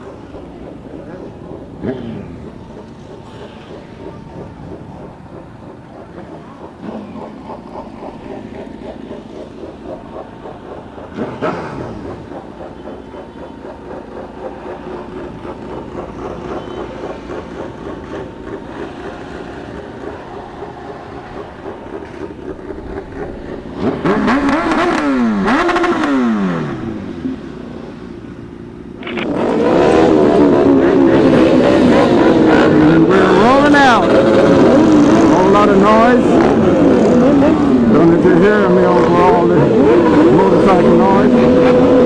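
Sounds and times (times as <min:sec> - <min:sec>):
motorcycle engines running: 0:00.0 - 0:42.0
motorcycle revving: 0:00.0 - 0:42.0.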